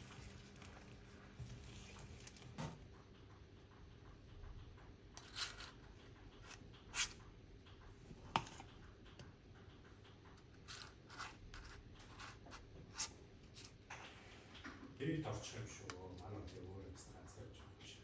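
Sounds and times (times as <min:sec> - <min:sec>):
rustles and clicks of handling: 0:00.0 - 0:03.4.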